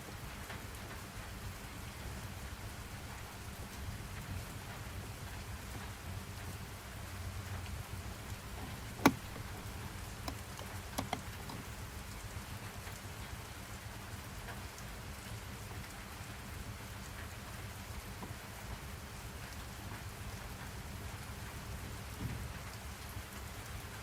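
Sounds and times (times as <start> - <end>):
steady rain hiss: 0.0 - 24.0
sharp clicks: 8.4 - 11.8.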